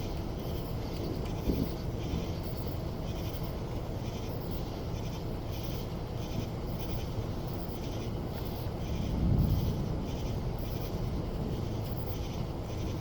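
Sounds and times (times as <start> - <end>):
steady rain falling: 8.0 - 13.0.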